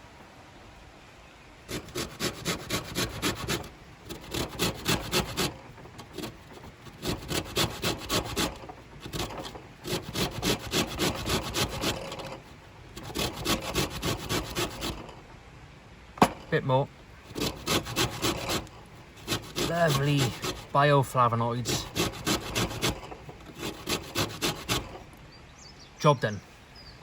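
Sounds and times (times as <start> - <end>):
lemon rasping on a grater: 1.7 - 15.2, 17.2 - 25.1.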